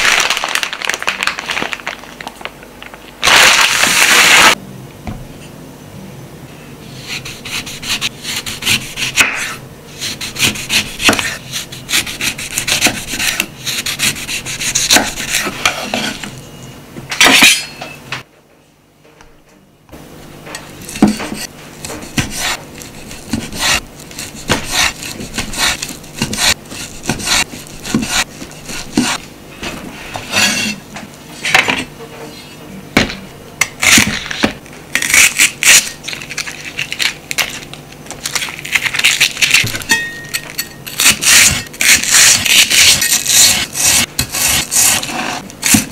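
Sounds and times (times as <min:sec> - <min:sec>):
knife cutting on wooden board: 0:07.0 - 0:16.3, 0:20.9 - 0:29.2.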